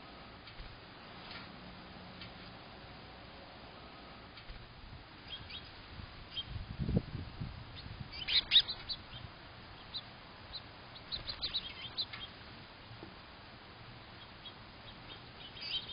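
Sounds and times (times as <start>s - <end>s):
small birds chirping: 5.2s - 15.9s.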